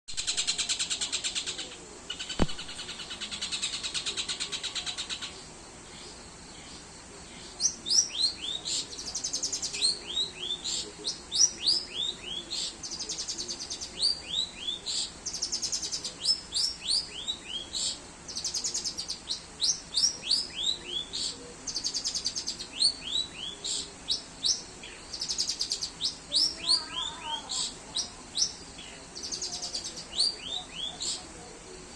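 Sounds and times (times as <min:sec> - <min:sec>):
songbird singing: 0:00.1 - 0:31.9
sharp click: 0:02.3 - 0:02.8.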